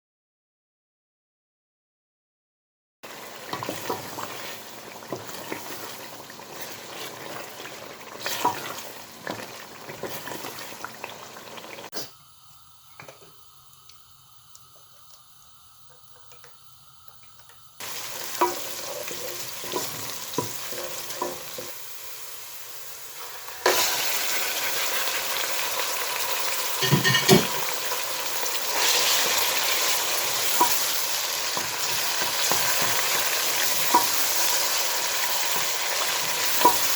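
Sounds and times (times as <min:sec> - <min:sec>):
food sizzling in a pan: 0:03.0 - 0:36.9.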